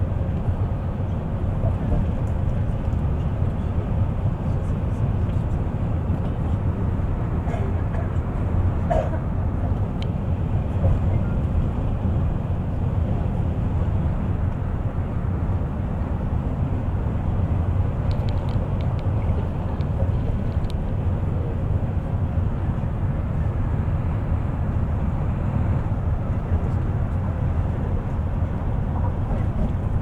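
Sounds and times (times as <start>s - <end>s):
bus engine and tyres rumbling: 0.0s - 30.0s
light clicks and rattles: 18.0s - 20.9s.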